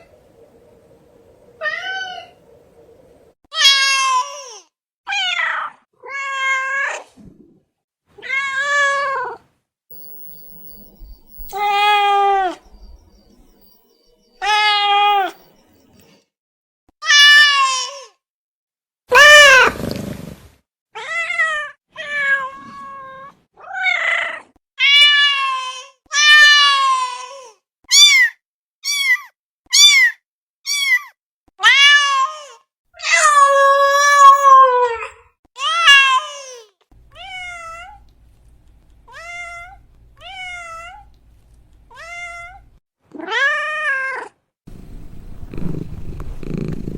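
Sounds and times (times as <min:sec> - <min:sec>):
cat meowing: 0:14.4 - 0:15.3.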